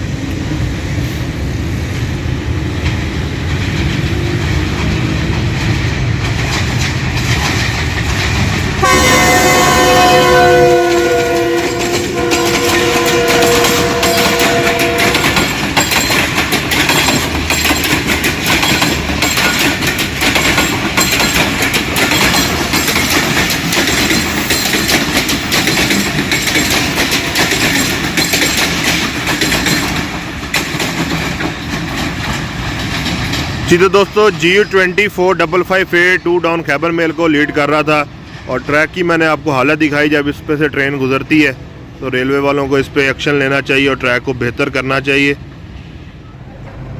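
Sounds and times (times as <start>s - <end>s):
train wheels clattering over rail joint: 2.5s - 8.8s, 10.8s - 35.2s
locomotive multi-tone horn: 8.8s - 15.5s.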